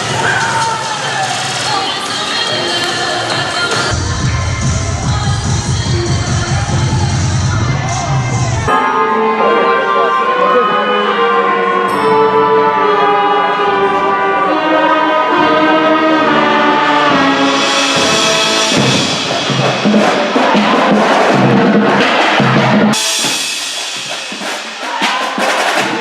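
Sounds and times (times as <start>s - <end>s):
drums and percussion: 0.0s - 9.2s, 16.4s - 26.0s
band music with brass: 2.5s - 26.0s.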